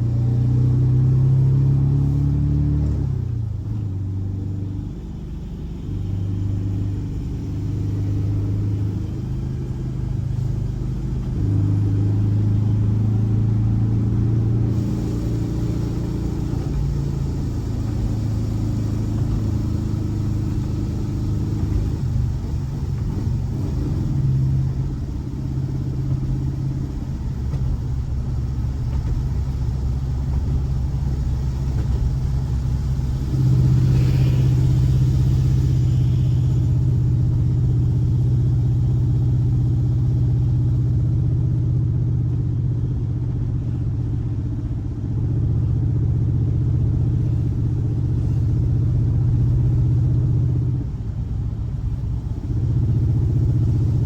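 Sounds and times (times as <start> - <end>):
air-cooled car engine running: 0.0 - 54.0.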